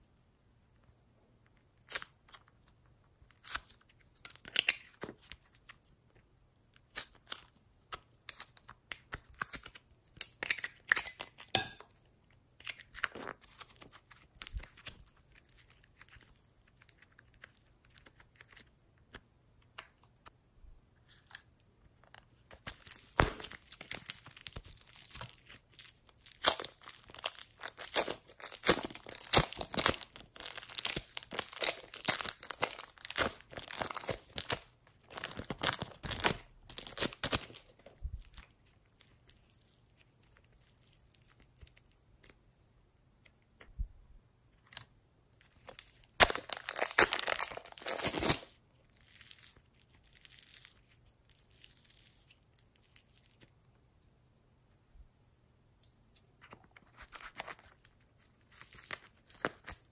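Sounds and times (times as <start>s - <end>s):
slime clicking and crackling: 22.2s - 42.3s, 45.6s - 53.4s.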